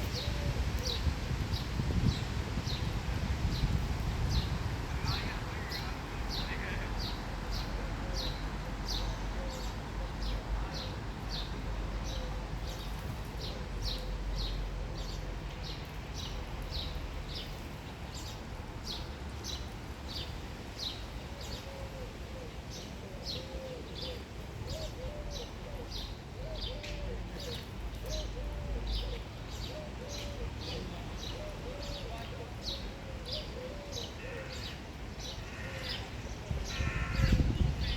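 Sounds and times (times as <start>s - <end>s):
pigeons cooing: 23.1s - 34.6s.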